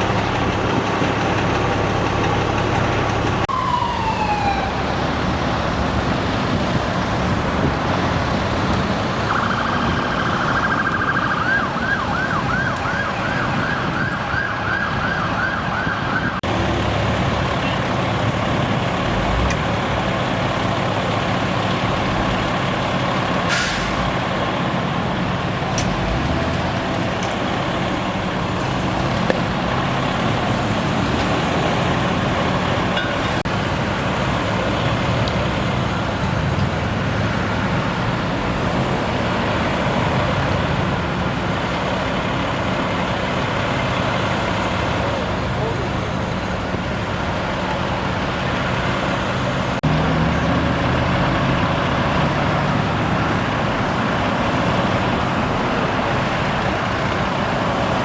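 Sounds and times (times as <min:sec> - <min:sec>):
heavy vehicle engine running: 0:00.0 - 0:15.0, 0:15.6 - 0:58.0
street noise: 0:00.0 - 0:58.0
emergency siren yelping: 0:01.7 - 0:07.8, 0:09.1 - 0:16.5.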